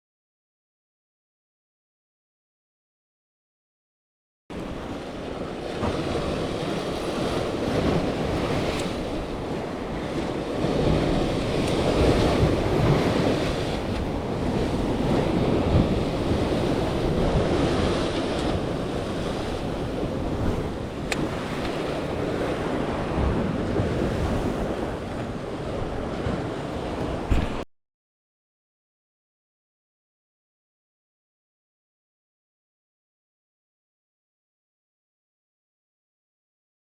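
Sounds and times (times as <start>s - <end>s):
sea waves washing in: 4.5s - 27.6s
wind buffeting microphone: 4.5s - 27.6s.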